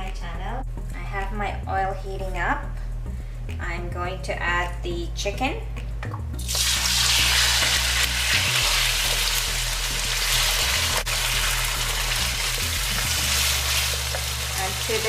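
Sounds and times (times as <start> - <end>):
chicken sizzling in hot oil: 6.4 - 15.0.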